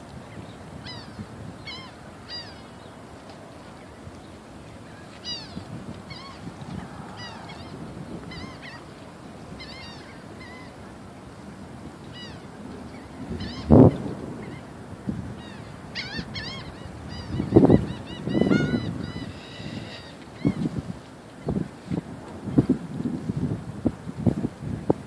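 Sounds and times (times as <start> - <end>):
birds honking calls: 5.2 - 10.8, 15.4 - 20.7.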